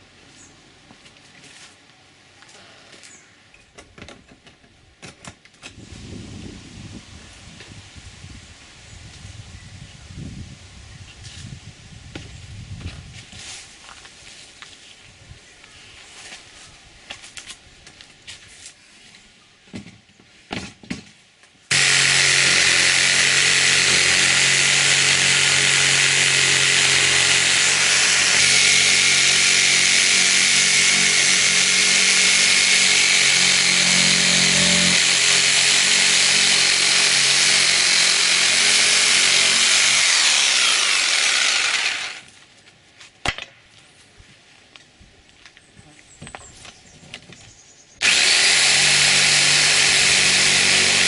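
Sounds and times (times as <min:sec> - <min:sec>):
electric saw cutting board: 0:21.7 - 0:42.3, 0:48.0 - 0:51.0.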